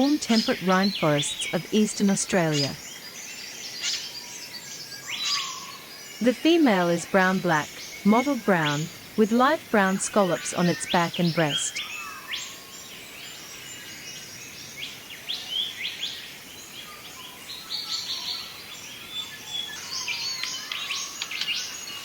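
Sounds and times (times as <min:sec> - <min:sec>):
faint steady hiss: 0:00.0 - 0:22.0
wild birds chirping and whistling: 0:00.0 - 0:22.0.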